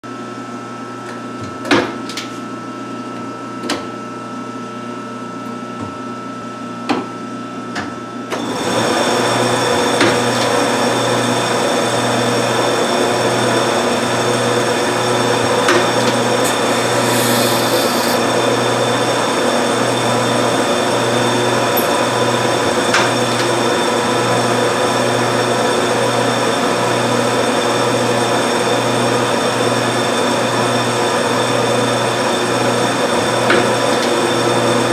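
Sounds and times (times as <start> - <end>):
lathe humming: 11.8 - 24.4.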